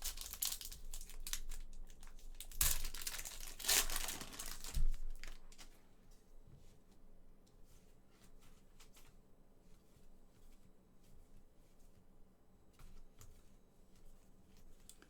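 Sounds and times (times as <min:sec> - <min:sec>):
plastic wrappers crinkling: 0:00.0 - 0:05.8.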